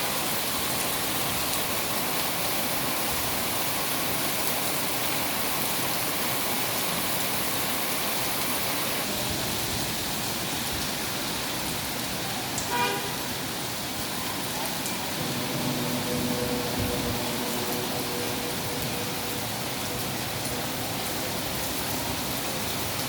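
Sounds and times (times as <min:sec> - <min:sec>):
steady rain hiss: 0:00.0 - 0:23.0
short horn toot: 0:12.7 - 0:13.2.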